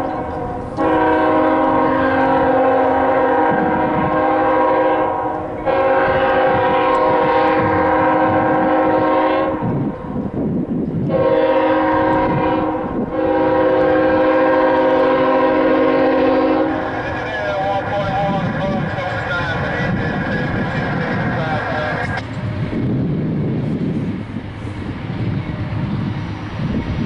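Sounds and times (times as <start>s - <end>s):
locomotive air horn blasts: 0.0s - 9.9s, 11.0s - 17.1s
moving train rumble: 0.0s - 27.0s.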